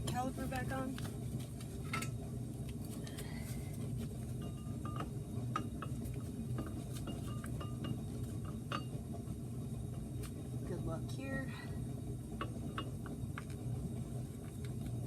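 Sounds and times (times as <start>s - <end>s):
steady low hum: 0.0s - 15.0s
metallic clinks and taps: 4.4s - 8.9s.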